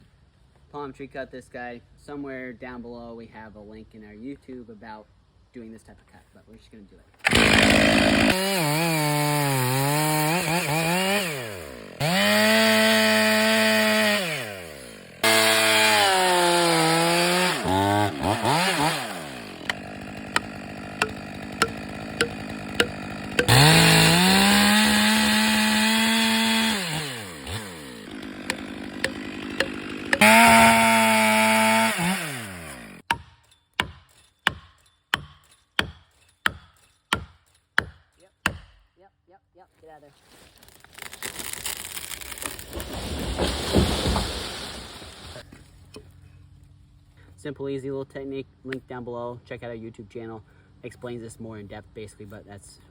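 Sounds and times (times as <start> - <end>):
chainsaw revving and idling: 7.2 - 33.1
hammer knocking wedges: 20.3 - 23.8, 28.4 - 30.8.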